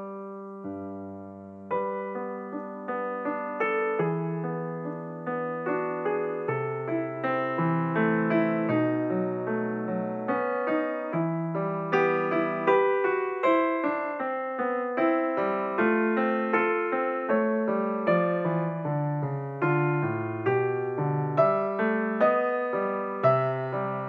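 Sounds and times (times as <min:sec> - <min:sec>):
gentle piano melody: 0:00.0 - 0:24.0.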